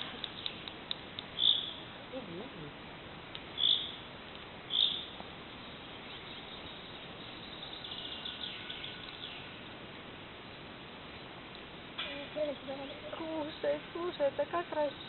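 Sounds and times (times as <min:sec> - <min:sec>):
sharp high bird call notes: 0:01.4 - 0:01.8, 0:03.6 - 0:04.0.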